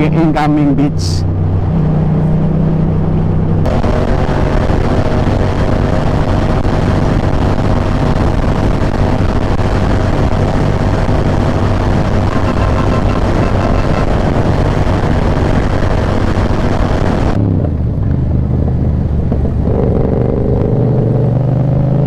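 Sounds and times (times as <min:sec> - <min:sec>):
wind rush on microphone: 0:03.0 - 0:20.4
motorcycle engine running: 0:03.6 - 0:21.4.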